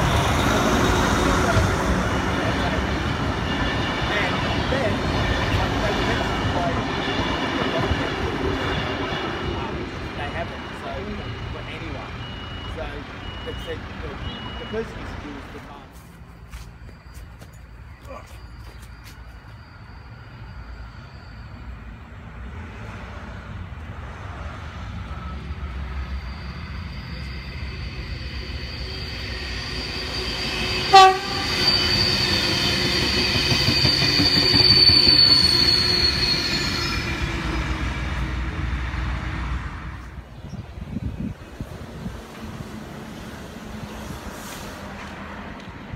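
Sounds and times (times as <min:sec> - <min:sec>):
train rumble: 0:00.0 - 0:45.9
thin high squeal: 0:25.6 - 0:37.5
train horn blast: 0:30.8 - 0:32.2.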